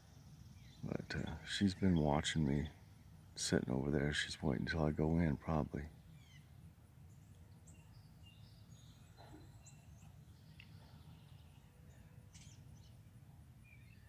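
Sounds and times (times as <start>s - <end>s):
low background noise: 0.0s - 14.0s
small songbirds chirping: 0.0s - 14.0s.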